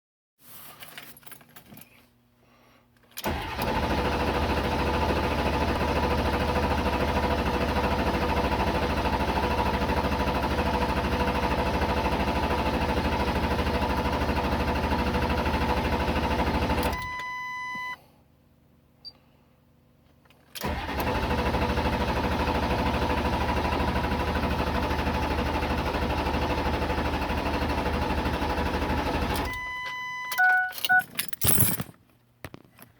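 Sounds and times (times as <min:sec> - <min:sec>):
diesel engine starter cranking: 0:03.2 - 0:17.3, 0:20.6 - 0:31.9
short beep: 0:17.0 - 0:18.0, 0:29.5 - 0:31.1.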